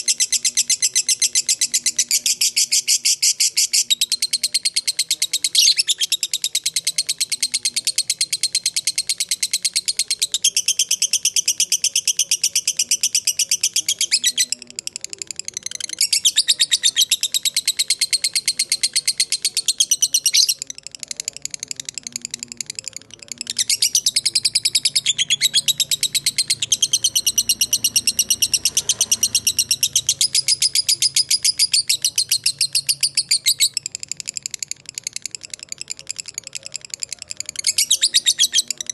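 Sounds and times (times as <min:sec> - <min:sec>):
lovebird chattering trill: 0:00.0 - 0:38.9.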